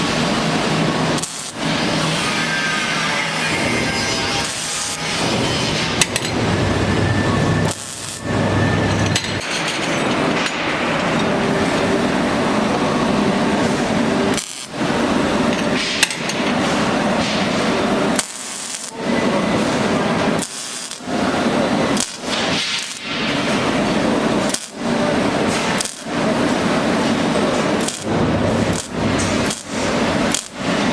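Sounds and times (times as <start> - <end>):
power tool running on steel: 0.0 - 30.9.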